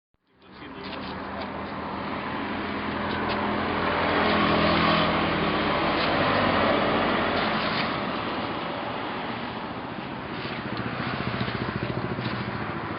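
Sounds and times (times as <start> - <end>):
motorcycle engine running: 9.0 - 12.9.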